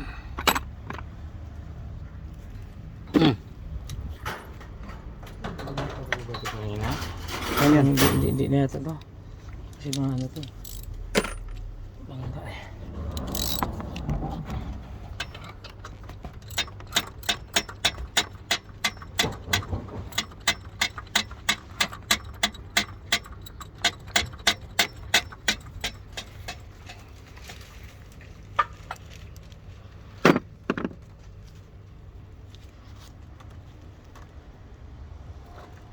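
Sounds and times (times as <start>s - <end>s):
ratchet wrench clicking: 10.2s - 11.5s, 13.2s - 13.6s, 16.4s - 27.0s.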